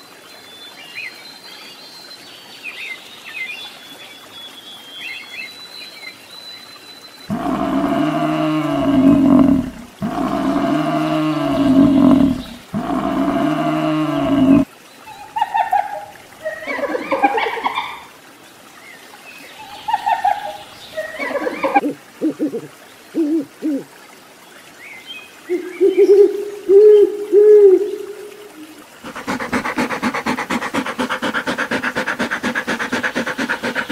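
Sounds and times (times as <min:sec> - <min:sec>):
hyenas gliding cries: 0:07.3 - 0:14.6, 0:29.0 - 0:33.9
water buffalo low call: 0:07.3 - 0:14.7, 0:29.0 - 0:33.9.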